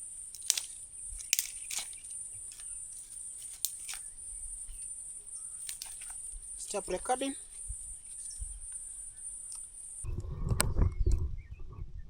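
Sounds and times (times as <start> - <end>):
insects droning: 0.0 - 10.1
sharp clicks: 0.3 - 2.7.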